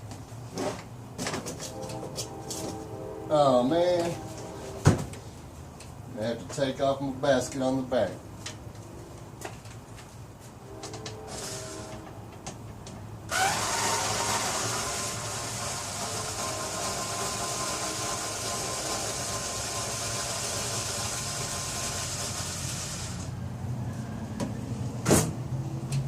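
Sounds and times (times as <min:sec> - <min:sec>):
power tool motor whining: 0:11.3 - 0:12.0, 0:13.3 - 0:23.3.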